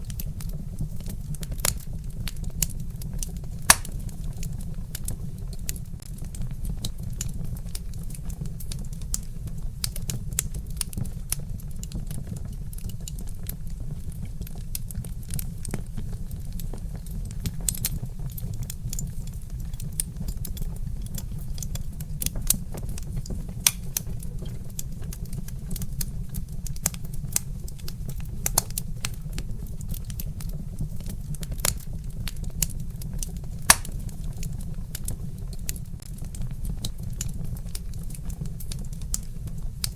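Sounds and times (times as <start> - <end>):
wood fire crackling: 0.0 - 39.9
loud fire pop: 3.7 - 4.1, 33.7 - 34.1.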